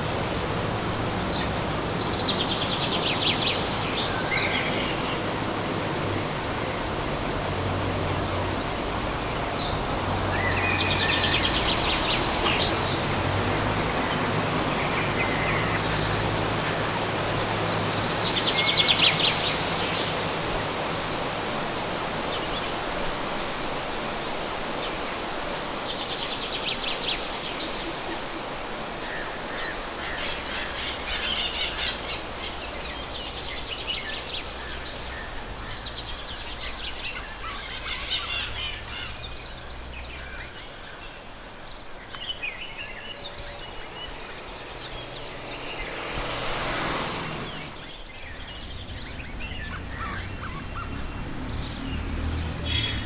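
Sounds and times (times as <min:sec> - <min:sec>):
low engine hum: 0:00.0 - 0:23.8, 0:29.8 - 0:53.0
distant traffic: 0:00.0 - 0:25.2, 0:28.0 - 0:53.0.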